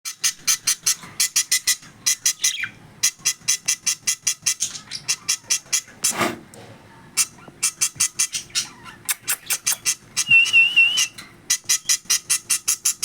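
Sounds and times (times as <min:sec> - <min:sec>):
parrots chirping shrilly: 0:11.5 - 0:13.0.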